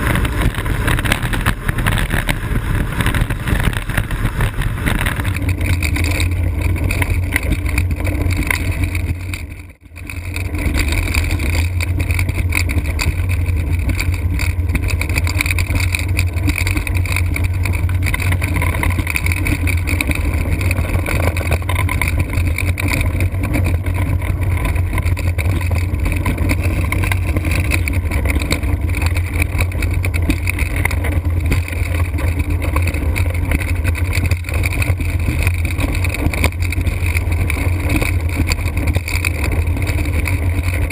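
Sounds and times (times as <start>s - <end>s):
wind rushing on microphone: 0.0s - 9.4s
low rumble: 0.0s - 40.9s.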